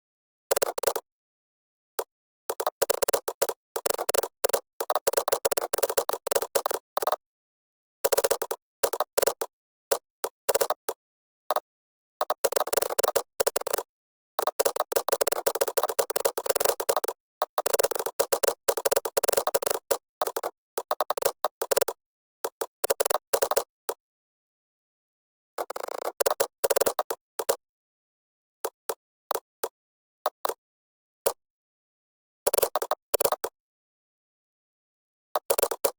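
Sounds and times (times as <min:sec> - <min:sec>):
typing on computer keyboard: 0:10.2 - 0:24.0, 0:35.4 - 0:35.9.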